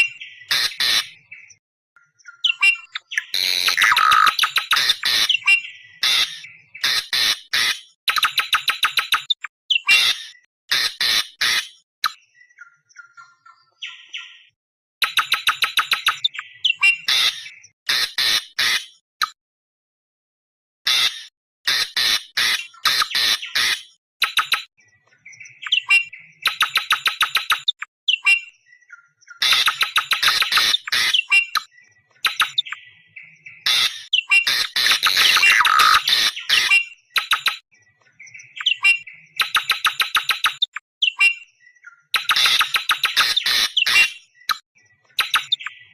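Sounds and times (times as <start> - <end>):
bird harsh squawks: 0.0 - 1.2, 2.5 - 11.8, 15.0 - 19.0, 20.9 - 24.6, 29.4 - 32.6, 33.6 - 37.6, 42.2 - 44.2
bird harsh rapid calls: 0.4 - 1.3, 2.4 - 11.8, 15.0 - 19.0, 20.9 - 24.6, 29.4 - 32.8, 33.6 - 37.6, 38.6 - 41.3, 42.2 - 44.2
faint whistled bird notes: 1.1 - 6.8, 15.2 - 17.7, 24.4 - 40.3, 41.0 - 45.9
bird whistled notes: 25.6 - 28.6, 29.4 - 31.7, 33.8 - 37.6, 38.6 - 41.5.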